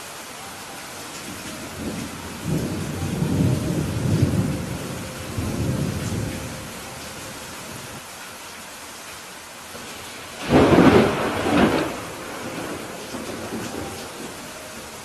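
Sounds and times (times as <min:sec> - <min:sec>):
steady rain: 0:00.0 - 0:15.0
thunder rolling: 0:01.7 - 0:06.8, 0:10.4 - 0:14.5.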